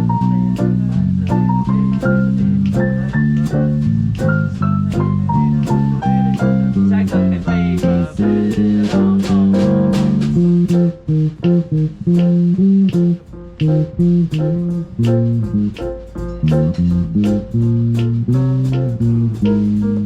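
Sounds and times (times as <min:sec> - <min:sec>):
jazz band playing: 0:00.0 - 0:20.0
plucked guitar and bass notes: 0:00.0 - 0:20.0.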